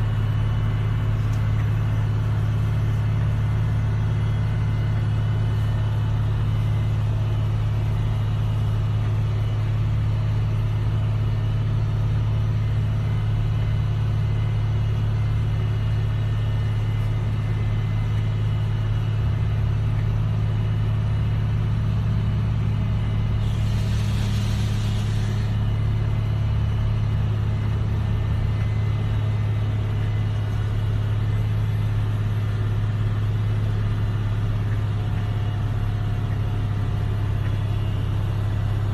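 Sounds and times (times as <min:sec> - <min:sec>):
machinery rumble: 0:00.0 - 0:38.9
brief hiss: 0:23.4 - 0:25.5.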